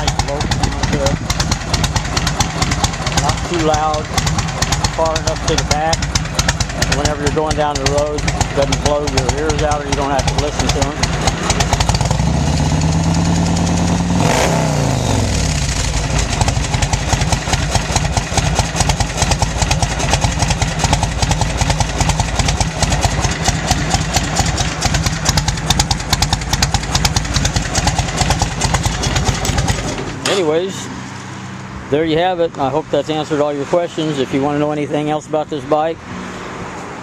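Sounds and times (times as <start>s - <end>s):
motorcycle engine revving and idling: 0.0s - 37.0s.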